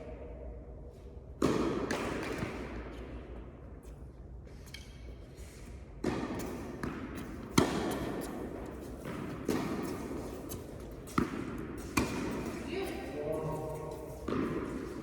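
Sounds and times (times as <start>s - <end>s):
tennis ball bouncing: 1.4s - 2.7s, 6.0s - 15.0s
tennis racket striking ball: 6.0s - 15.0s.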